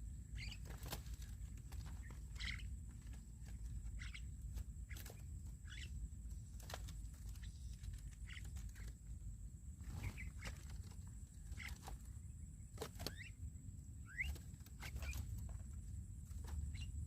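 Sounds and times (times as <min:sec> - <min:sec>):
birds chirping and whistling: 0:00.3 - 0:09.1, 0:09.8 - 0:13.4, 0:14.0 - 0:15.7, 0:16.3 - 0:17.0.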